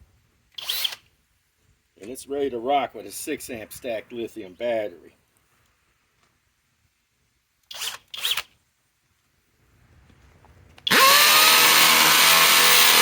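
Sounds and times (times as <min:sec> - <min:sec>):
cordless drill motor whine: 0:10.9 - 0:13.0.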